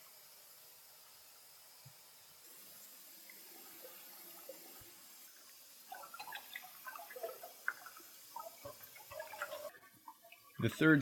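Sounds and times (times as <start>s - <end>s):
small drip-like clicks: 3.2s - 10.9s
creek water trickling: 5.9s - 11.0s.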